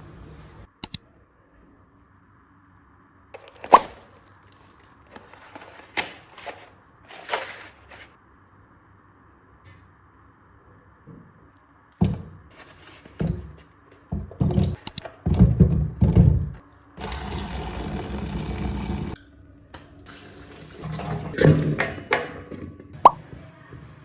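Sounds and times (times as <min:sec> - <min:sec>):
water tap running: 0:15.7 - 0:19.2, 0:19.9 - 0:22.0.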